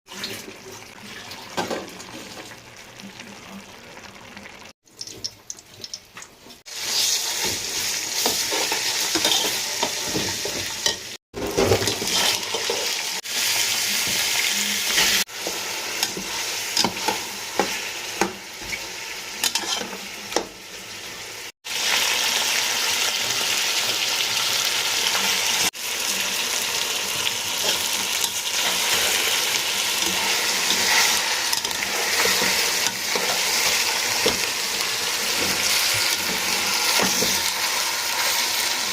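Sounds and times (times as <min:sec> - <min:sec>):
stirring in a pan: 0:00.1 - 0:21.0, 0:27.2 - 0:38.9
food sizzling in a pan: 0:00.1 - 0:38.9.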